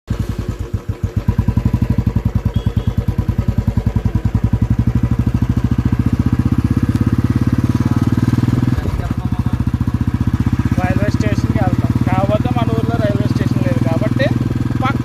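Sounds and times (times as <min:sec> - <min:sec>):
motorcycle engine running: 0:00.1 - 0:15.0.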